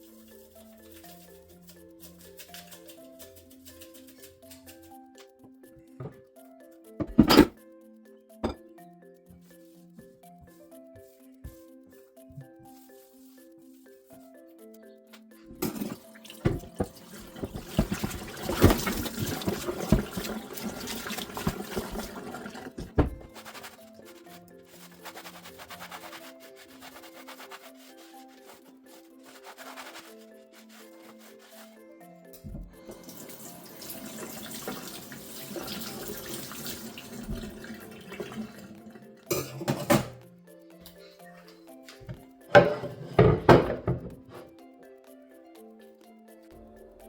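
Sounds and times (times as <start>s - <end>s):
soft background music: 0.0s - 47.0s
tap water running into sink: 15.6s - 23.2s, 32.9s - 38.8s.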